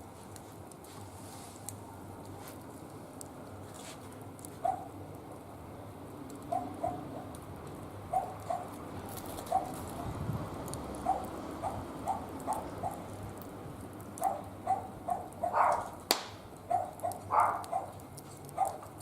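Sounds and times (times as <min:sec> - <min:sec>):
dog barking: 0:04.6 - 0:04.9, 0:06.5 - 0:07.2, 0:08.1 - 0:08.8, 0:09.5 - 0:09.8, 0:11.0 - 0:13.0, 0:14.2 - 0:16.0, 0:16.7 - 0:18.9
sharp crack: 0:15.7 - 0:16.6.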